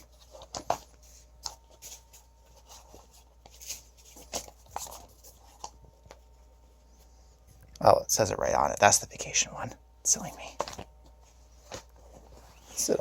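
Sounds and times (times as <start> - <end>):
mats rustling: 0.0 - 7.5, 10.2 - 13.0.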